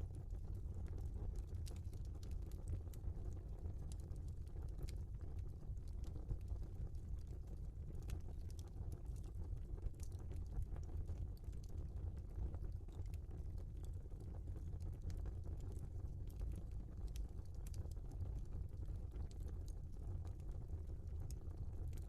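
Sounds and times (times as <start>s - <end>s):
wood fire burning: 0.0s - 22.0s
logs crackling and popping: 0.2s - 22.0s.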